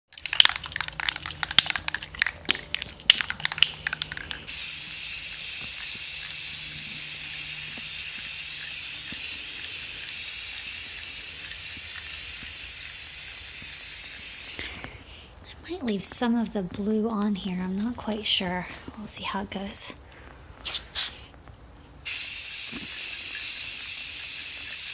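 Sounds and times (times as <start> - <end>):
spray can clicks and rattles: 0.1 - 14.7, 22.1 - 24.9
spray paint hissing: 0.2 - 14.7, 22.0 - 24.9.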